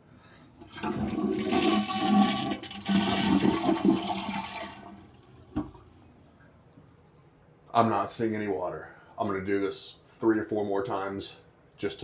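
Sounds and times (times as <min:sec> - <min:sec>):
toilet flushing: 0:00.4 - 0:06.0.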